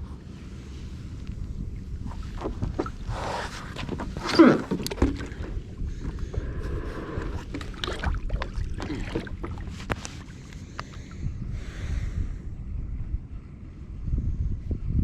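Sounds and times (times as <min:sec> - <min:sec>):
wind rumbling on microphone: 0:00.0 - 0:15.0
fishing gear clicking and knocking: 0:03.7 - 0:06.4.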